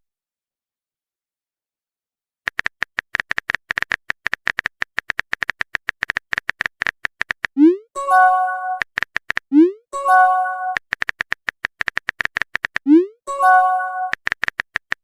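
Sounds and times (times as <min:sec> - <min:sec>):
phone keyboard typing clicks: 0:02.5 - 0:07.6, 0:08.7 - 0:09.6, 0:10.5 - 0:13.0, 0:13.8 - 0:15.0
electronic notification chime: 0:08.0 - 0:08.8, 0:10.0 - 0:10.8, 0:13.3 - 0:14.2.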